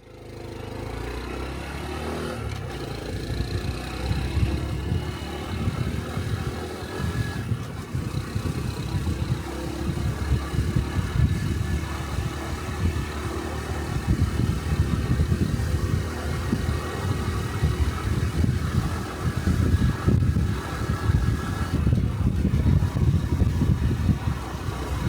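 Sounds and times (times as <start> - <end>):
motorcycle engine running: 0.0 - 25.0
wind rumbling on microphone: 2.8 - 25.0.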